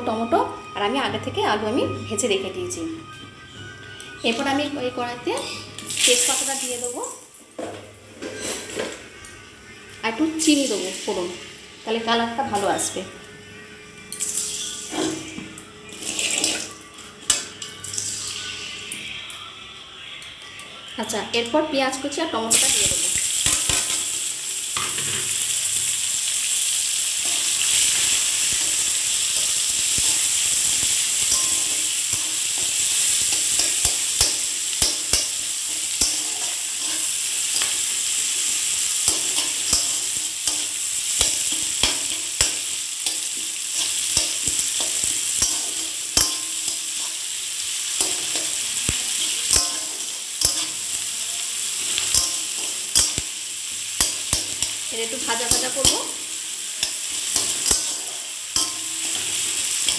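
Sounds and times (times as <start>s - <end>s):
onion and tomato sizzling in oil: 4.2s - 7.6s, 9.6s - 13.0s, 14.2s - 19.2s, 21.0s - 59.9s
metal spatula scraping pan: 8.1s - 8.9s, 27.2s - 47.3s.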